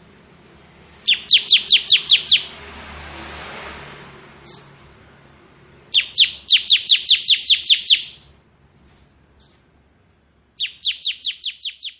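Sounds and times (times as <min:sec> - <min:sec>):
bird singing rapid sharp notes: 0:01.0 - 0:02.6, 0:04.4 - 0:04.8, 0:05.9 - 0:08.3, 0:09.3 - 0:11.9.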